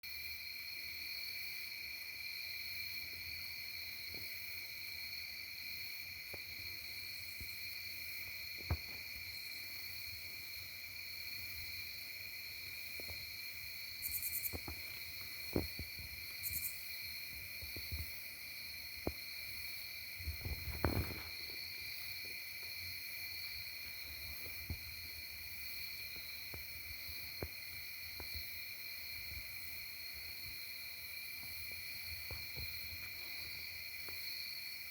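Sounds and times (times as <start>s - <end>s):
insect high trill: 13.9s - 14.7s, 16.3s - 17.0s.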